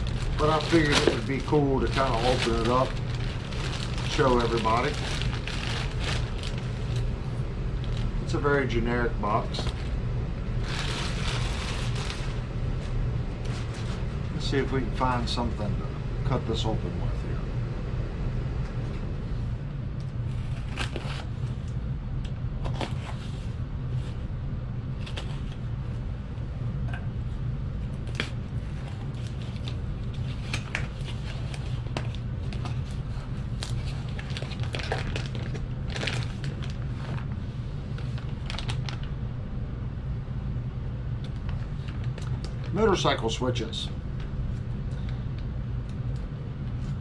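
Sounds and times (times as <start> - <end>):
tape and cardboard crinkling: 0.0 - 7.1, 10.6 - 12.4, 20.2 - 21.3, 28.0 - 37.3, 38.0 - 39.1
steady low hum: 0.0 - 47.0.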